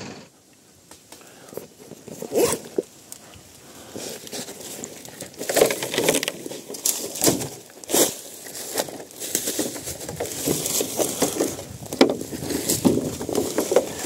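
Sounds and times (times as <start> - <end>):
footsteps crunching dry leaves: 3.8 - 14.0.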